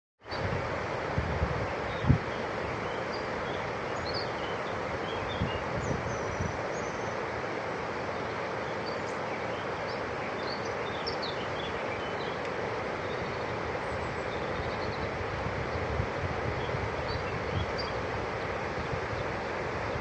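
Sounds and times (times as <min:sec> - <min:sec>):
small birds chirping: 0:08.1 - 0:20.0.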